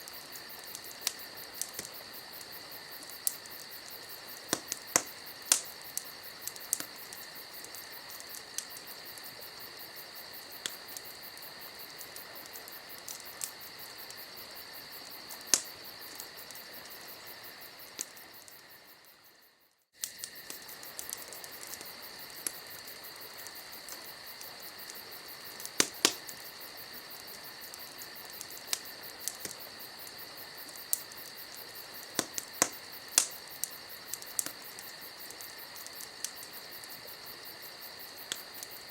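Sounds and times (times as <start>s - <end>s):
crickets chirring: 0.0s - 38.9s
wood fire crackling and popping: 0.0s - 38.9s.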